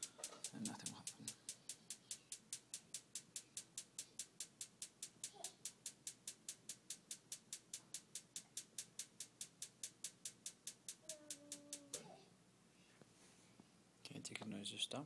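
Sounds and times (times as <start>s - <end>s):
furnace igniter ticking: 0.0s - 12.0s.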